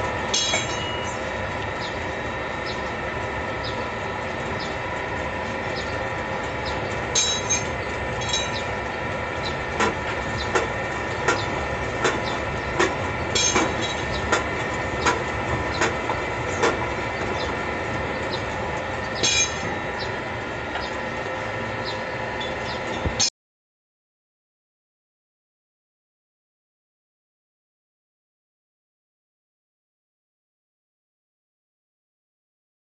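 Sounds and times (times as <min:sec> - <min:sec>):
machine humming: 0:00.0 - 0:23.3
regular mechanical clack: 0:09.7 - 0:17.6, 0:19.2 - 0:19.8.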